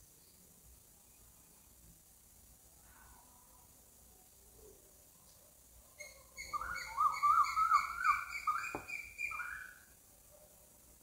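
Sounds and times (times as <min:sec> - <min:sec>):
bird whistling song: 0:06.0 - 0:09.9.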